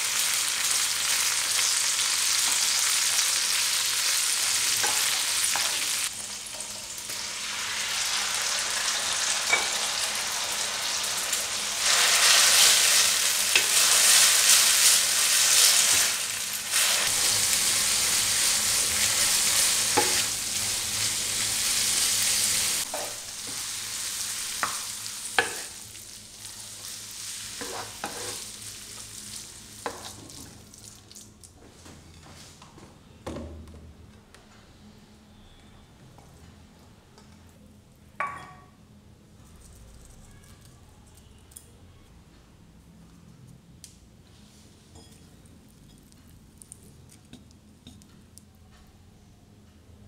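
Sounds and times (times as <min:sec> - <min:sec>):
sauce sizzling in a frying pan: 0:00.0 - 0:31.0
wooden spatula scraping a pan: 0:27.6 - 0:28.5.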